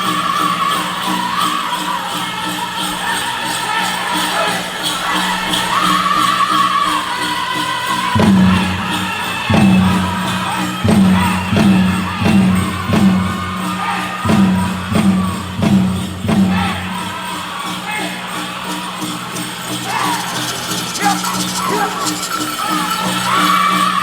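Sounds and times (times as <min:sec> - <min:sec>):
high voices singing: 0:00.0 - 0:24.0
big drum beats: 0:08.1 - 0:24.0.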